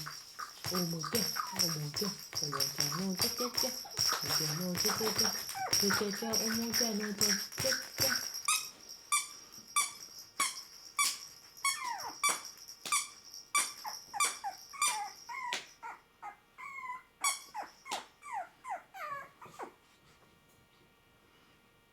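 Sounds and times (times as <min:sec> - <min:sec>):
puppy whimpering: 0:05.2 - 0:06.4, 0:11.7 - 0:12.2, 0:13.9 - 0:19.8.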